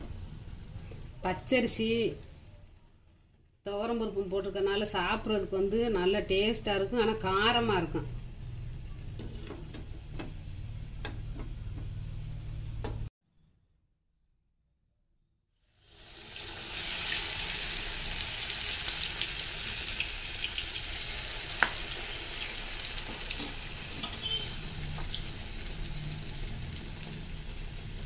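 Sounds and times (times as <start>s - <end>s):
batter deep-frying in hot oil: 15.6s - 28.0s.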